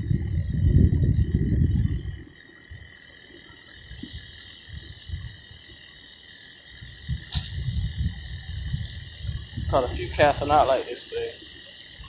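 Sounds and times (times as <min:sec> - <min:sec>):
loud low rumble: 0:00.0 - 0:02.3
chorus of calling frogs: 0:01.7 - 0:12.0.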